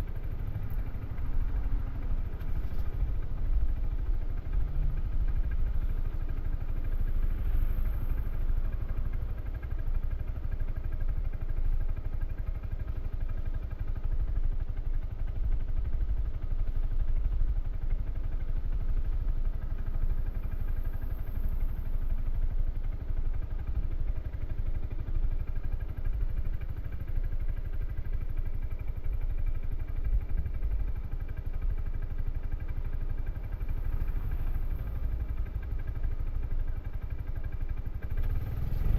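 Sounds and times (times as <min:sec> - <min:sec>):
scooter engine running: 0:00.0 - 0:11.8, 0:19.7 - 0:38.9.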